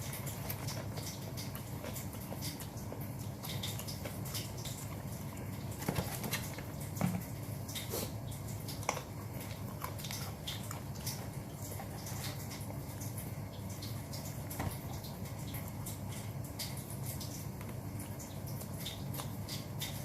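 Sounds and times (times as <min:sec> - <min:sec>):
chewing with wet mouth clicks: 0:00.0 - 0:20.0.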